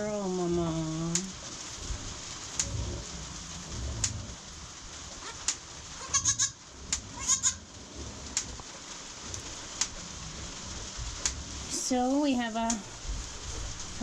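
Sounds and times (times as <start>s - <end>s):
goat kid bleating: 6.0s - 6.6s, 7.2s - 7.6s.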